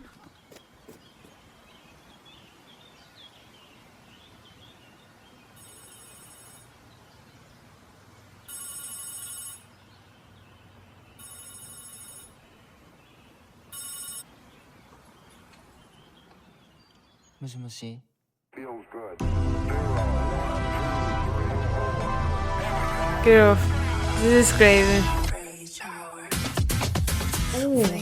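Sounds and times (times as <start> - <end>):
electronic ringing tone: 5.6 - 6.7, 8.5 - 9.7, 11.2 - 12.4, 13.7 - 14.3.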